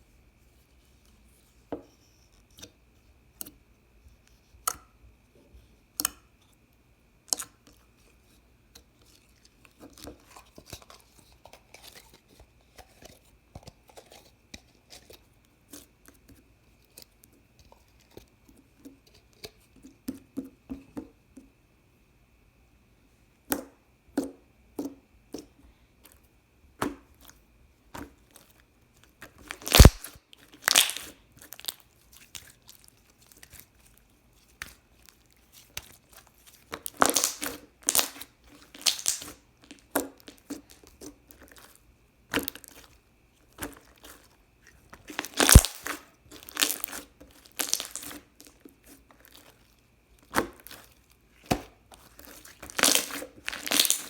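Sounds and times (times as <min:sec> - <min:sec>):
slime squished by hand: 0:29.2 - 0:54.0.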